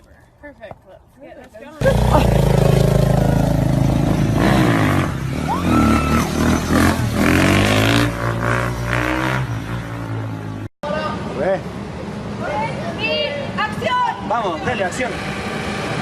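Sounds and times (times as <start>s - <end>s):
dirt bike engine revving: 1.8s - 10.4s.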